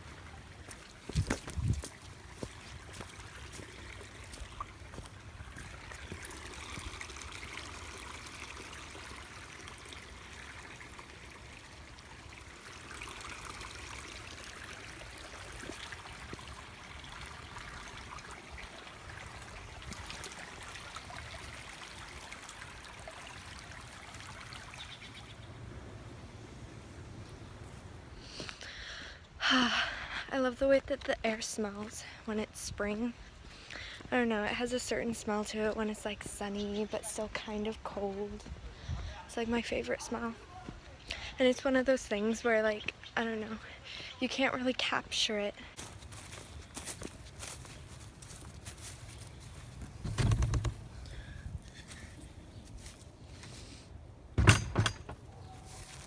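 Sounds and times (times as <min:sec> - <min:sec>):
stream trickling: 0:00.0 - 0:28.5, 0:31.6 - 0:56.0
sharp knocks: 0:54.4 - 0:55.2.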